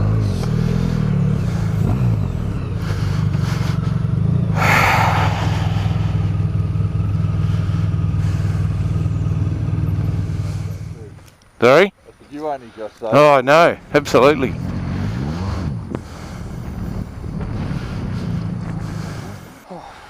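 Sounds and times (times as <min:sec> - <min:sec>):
motorcycle engine running: 0:00.0 - 0:11.3, 0:13.7 - 0:19.6
short burst of noise: 0:04.6 - 0:06.3.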